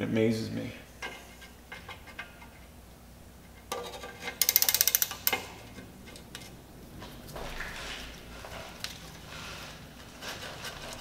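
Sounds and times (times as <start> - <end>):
ratchet wrench clicking: 4.4 - 5.5.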